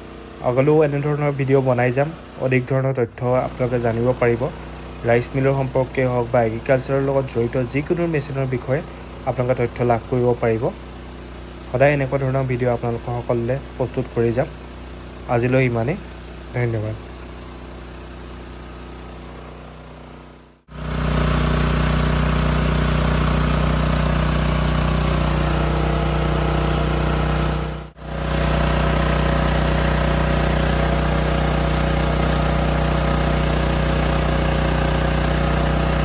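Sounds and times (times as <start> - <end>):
diesel engine droning: 0.0 - 10.7
rice mill hiss: 0.0 - 19.4.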